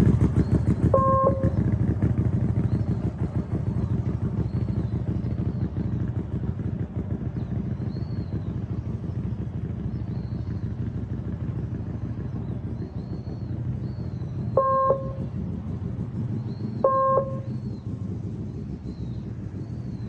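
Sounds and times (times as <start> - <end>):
small motorcycle engine running: 0.0 - 20.0
short beeps: 1.0 - 1.6, 14.6 - 15.2, 16.8 - 17.5.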